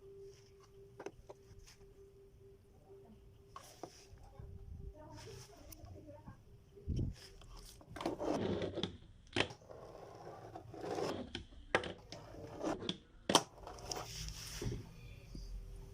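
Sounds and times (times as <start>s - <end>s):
fingerboard scraping on hard surface: 7.7s - 8.9s, 9.5s - 11.4s, 12.1s - 13.0s.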